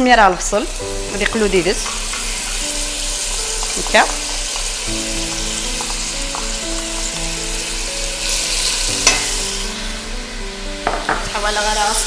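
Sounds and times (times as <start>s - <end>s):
onion and meat sizzling in oil: 0.0s - 12.0s.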